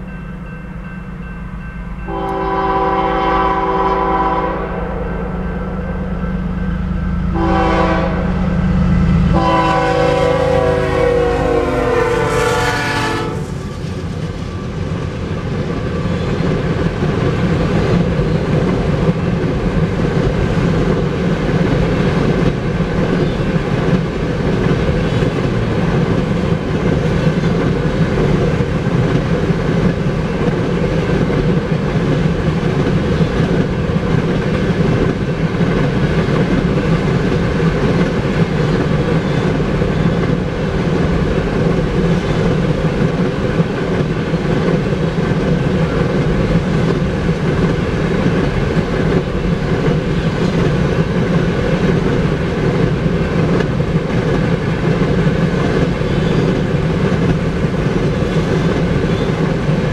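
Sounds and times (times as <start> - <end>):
train wheels rumbling on rails: 0.0 - 59.9
locomotive horn: 2.1 - 6.5, 7.3 - 14.0.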